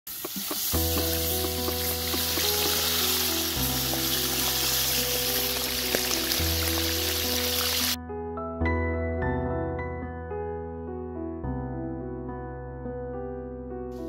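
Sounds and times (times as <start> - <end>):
hot oil sizzling in a pot: 0.1 - 8.0
background music of held chords: 0.7 - 14.0.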